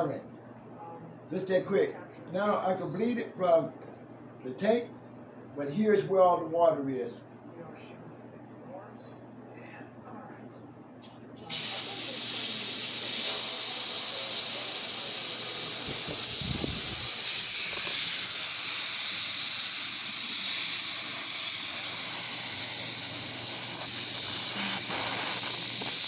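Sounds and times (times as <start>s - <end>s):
high-pressure air hissing: 11.0s - 26.0s.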